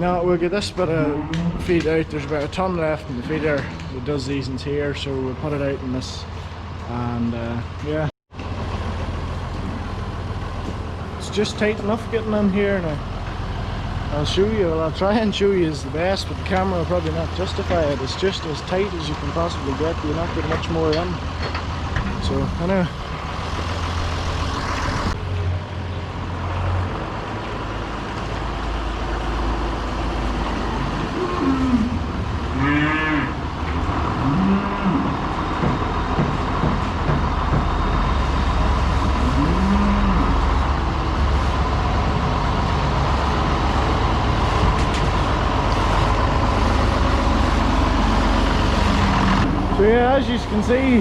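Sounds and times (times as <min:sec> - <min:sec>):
tractor engine running: 0:08.3 - 0:25.3, 0:35.0 - 0:39.4, 0:40.2 - 0:51.0
cows mooing: 0:30.6 - 0:35.5, 0:38.8 - 0:40.8.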